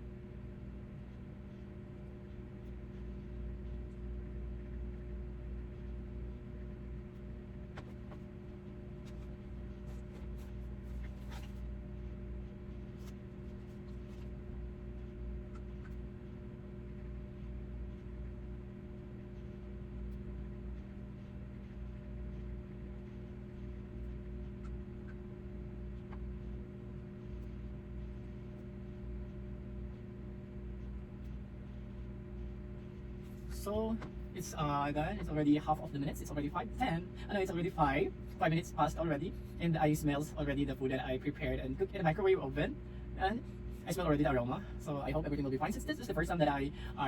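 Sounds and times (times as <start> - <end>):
low electrical hum: 0.0 - 47.0.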